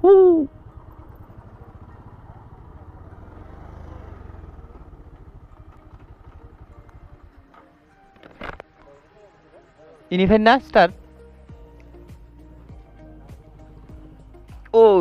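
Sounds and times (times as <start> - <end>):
person calling out: 0.0 - 0.5
motorcycle engine running: 0.0 - 7.9.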